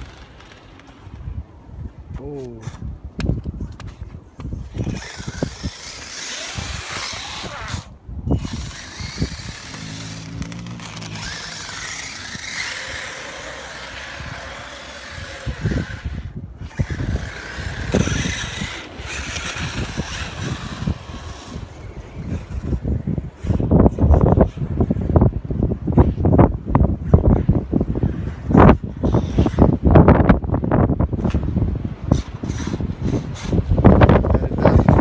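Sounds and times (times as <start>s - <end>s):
wind noise: 0.0s - 35.0s
wind thumps on microphone: 1.0s - 35.0s
electric motor whine: 4.7s - 22.8s.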